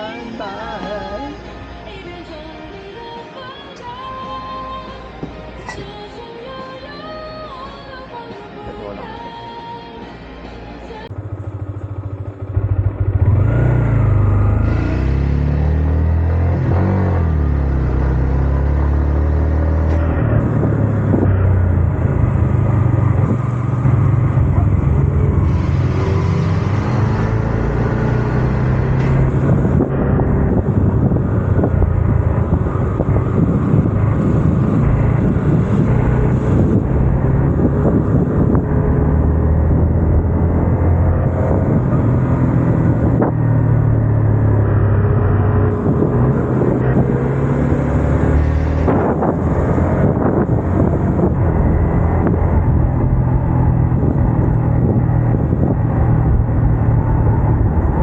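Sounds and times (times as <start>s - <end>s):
motorcycle engine revving: 11.1s - 58.0s
wind rushing past microphone: 19.9s - 58.0s.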